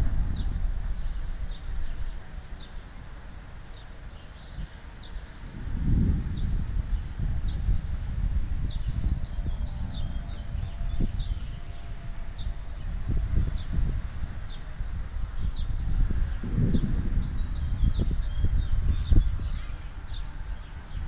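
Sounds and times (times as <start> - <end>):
uneven low rumble: 0.0 - 21.0.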